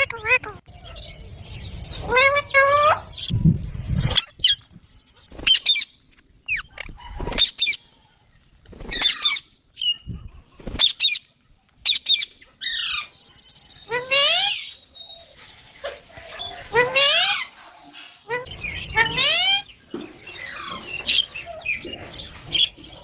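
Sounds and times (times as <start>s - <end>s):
parrot squawking: 2.0s - 3.3s, 13.9s - 14.8s, 16.6s - 19.7s.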